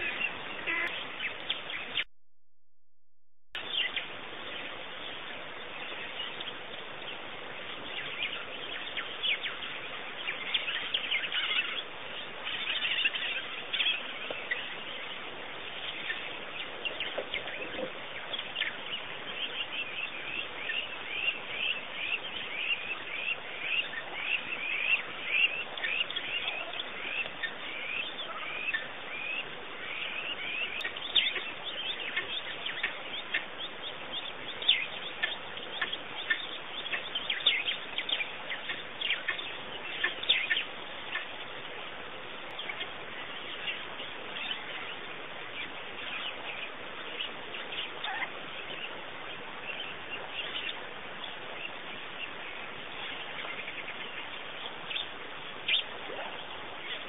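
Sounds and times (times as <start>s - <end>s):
small birds chirping: 0.0s - 2.1s, 3.6s - 57.0s.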